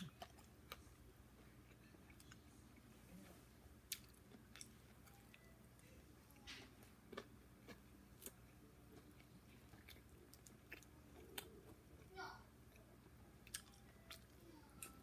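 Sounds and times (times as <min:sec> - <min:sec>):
person chewing: 0:00.0 - 0:03.0, 0:03.8 - 0:12.1, 0:12.7 - 0:15.0.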